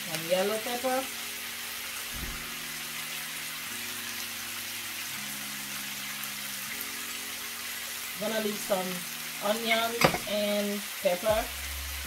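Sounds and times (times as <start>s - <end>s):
chicken sizzling in a pan: 0.0s - 12.0s
peppers dropped into pan thump: 10.0s - 10.4s.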